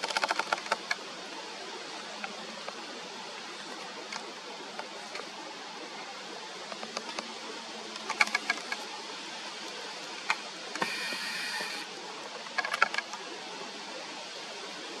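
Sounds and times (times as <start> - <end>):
steady hiss: 0.0 - 15.0
bird tick-like calls: 10.3 - 11.9
harsh rasping bird call: 10.8 - 11.9.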